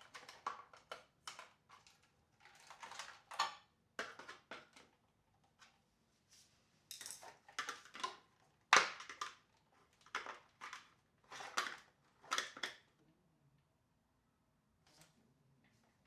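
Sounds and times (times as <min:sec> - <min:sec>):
plastic parts clicking and rattling: 0:00.0 - 0:05.0, 0:06.9 - 0:12.9.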